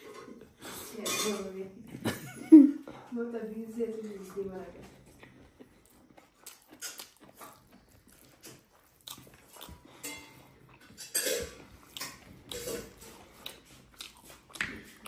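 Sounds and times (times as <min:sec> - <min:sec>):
person chewing food: 0:04.7 - 0:15.0
wet mouth clicks and smacks: 0:06.2 - 0:09.9, 0:13.4 - 0:15.0.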